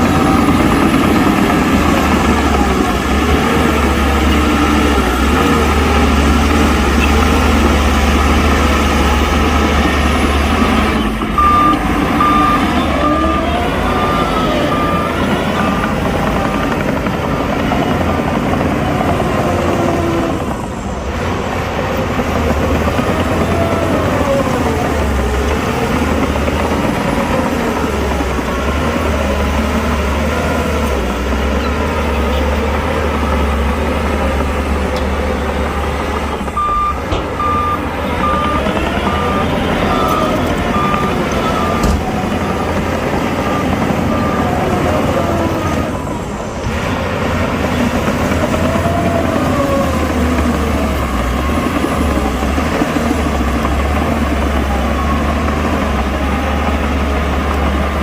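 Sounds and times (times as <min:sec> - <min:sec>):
diesel machinery engine under load: 0:00.0 - 0:58.0
reversing alarm beeping: 0:03.7 - 0:17.1, 0:36.5 - 0:45.9.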